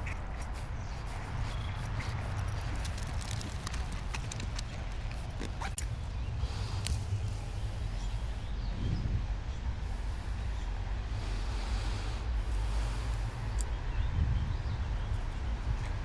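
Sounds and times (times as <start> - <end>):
twigs snapping: 0.0 - 7.5
footsteps through brush: 0.0 - 7.6
steady low rumble: 0.0 - 16.0.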